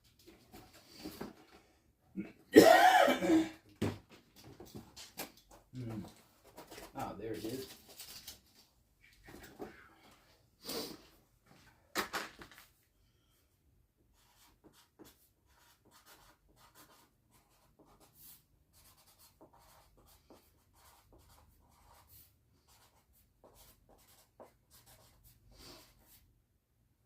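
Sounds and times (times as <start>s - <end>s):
marker scratching on cardboard: 14.1s - 26.2s.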